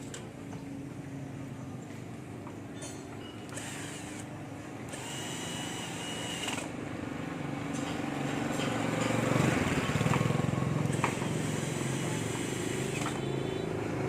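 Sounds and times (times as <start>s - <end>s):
engine pulsing: 9.4s - 14.0s.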